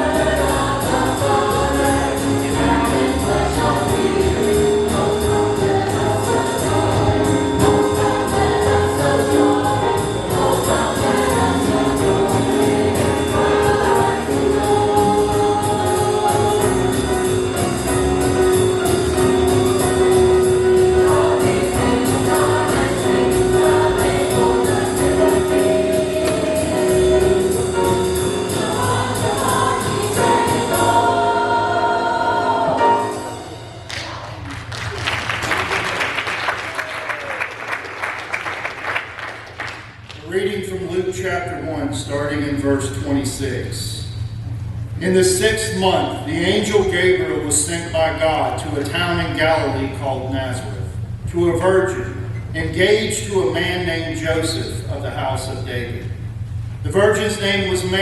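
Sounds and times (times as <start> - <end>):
choir singing: 0.0 - 34.4
jazz instrumental accompaniment: 0.0 - 34.5.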